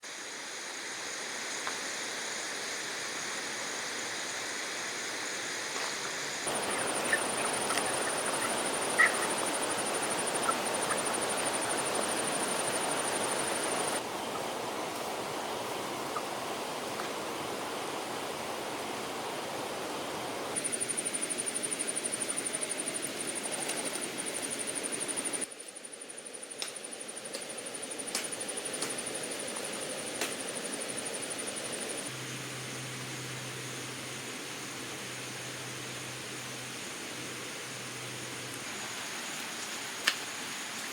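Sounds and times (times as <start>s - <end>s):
steady rushing noise: 0.2s - 20.8s.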